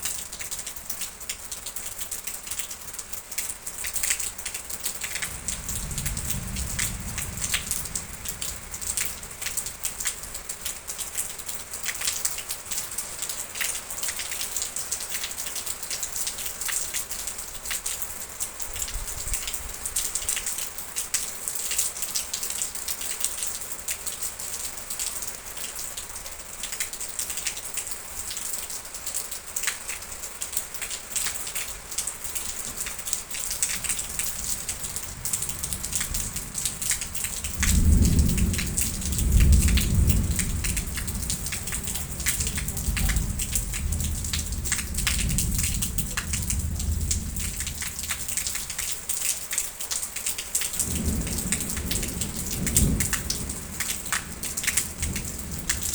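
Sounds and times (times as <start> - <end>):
heavy rain: 0.0 - 55.9
thunder rumbling: 5.0 - 10.8, 32.3 - 48.8, 50.8 - 55.9.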